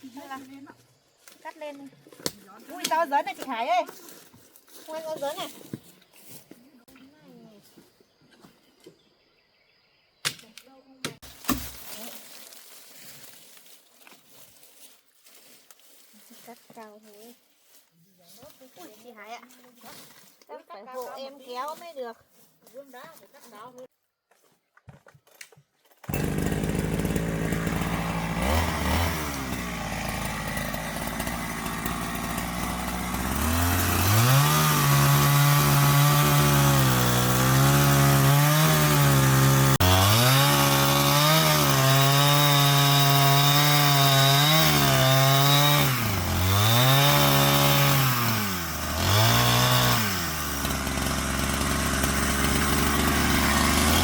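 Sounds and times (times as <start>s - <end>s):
chainsaw cutting a tree: 26.0s - 54.0s.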